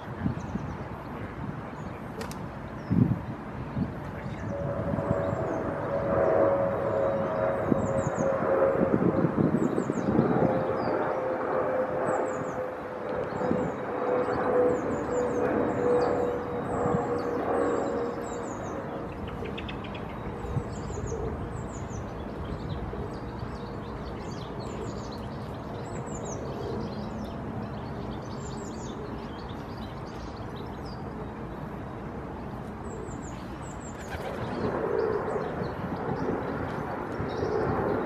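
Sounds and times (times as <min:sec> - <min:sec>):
distant traffic rumble: 0:00.0 - 0:38.0
small birds chirping: 0:09.1 - 0:31.7.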